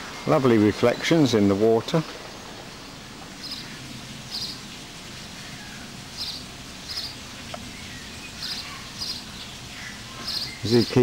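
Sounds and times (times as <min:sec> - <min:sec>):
small bird chirping: 0:02.6 - 0:04.6, 0:05.4 - 0:11.0.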